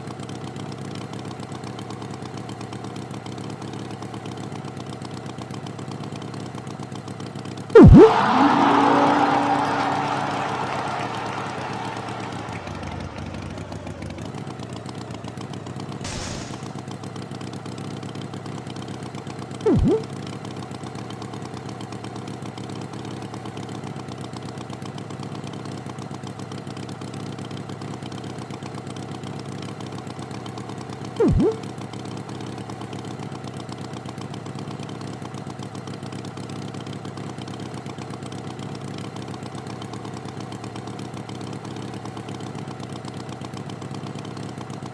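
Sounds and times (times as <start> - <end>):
short loud sounds: 7.8 - 12.8, 16.1 - 16.7, 19.7 - 20.1.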